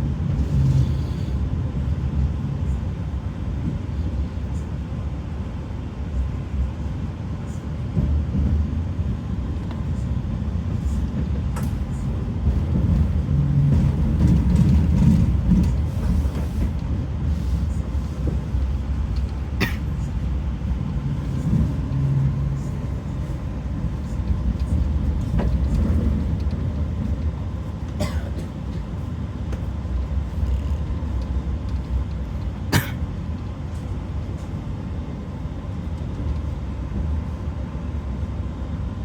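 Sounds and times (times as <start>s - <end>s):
train wheels rumbling on track: 0.0s - 39.0s.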